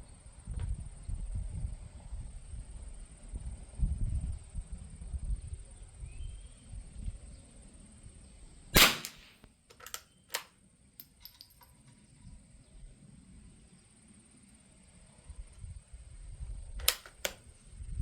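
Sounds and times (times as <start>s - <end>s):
rifle shot: 8.8s - 9.4s
rifle bolt clicks: 8.8s - 11.7s, 16.8s - 17.4s.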